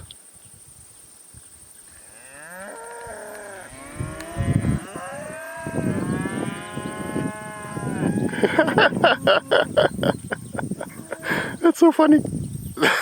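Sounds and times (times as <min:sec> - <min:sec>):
cattle mooing: 0:02.1 - 0:09.8.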